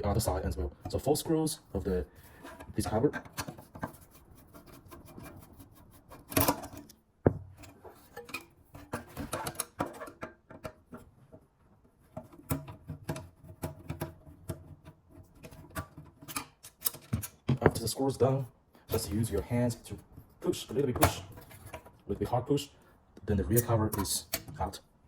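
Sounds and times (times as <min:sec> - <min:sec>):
scrape: 0:02.1 - 0:06.8.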